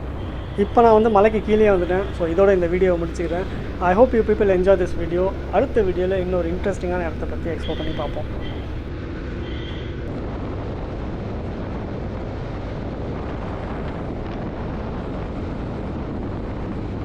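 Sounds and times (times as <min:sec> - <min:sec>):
motorcycle riding: 0:00.0 - 0:08.9
wind on microphone: 0:00.0 - 0:17.0.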